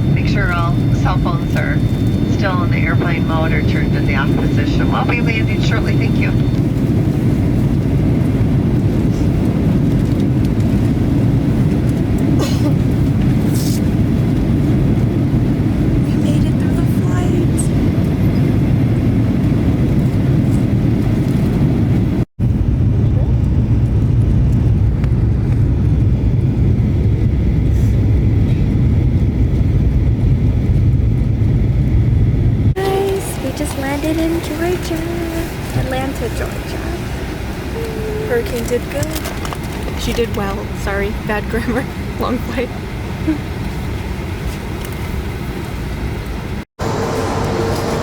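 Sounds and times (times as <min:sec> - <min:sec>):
jet airliner cabin rumble: 0:00.0 - 0:48.0.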